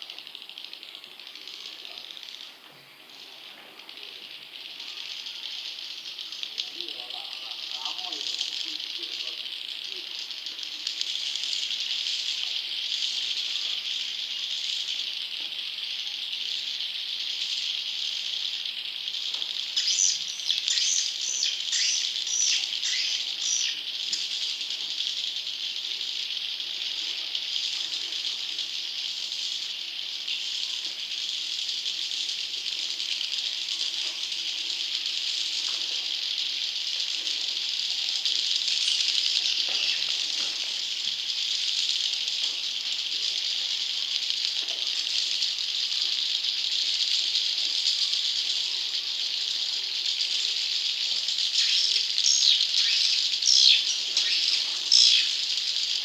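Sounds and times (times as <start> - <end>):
swiftlet chicks chattering: 19.7 - 24.3, 51.4 - 55.4.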